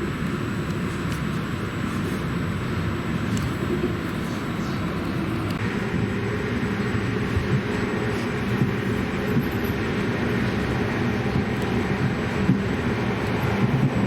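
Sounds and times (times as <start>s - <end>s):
passenger train rumbling: 0.0s - 14.0s
wheels knocking on track: 7.4s - 14.0s.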